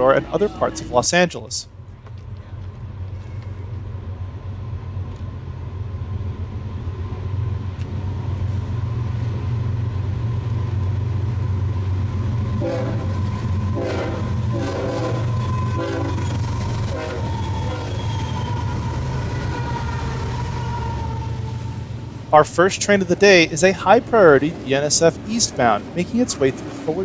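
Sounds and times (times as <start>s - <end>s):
diesel locomotives rumbling: 0.0s - 27.0s
train horn blasts: 12.5s - 23.6s.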